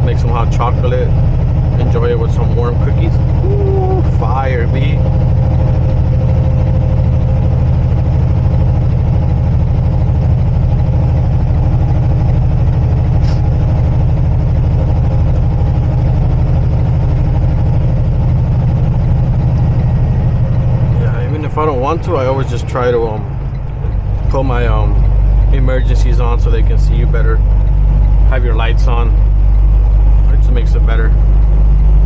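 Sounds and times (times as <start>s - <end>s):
truck diesel engine running: 0.0s - 32.0s.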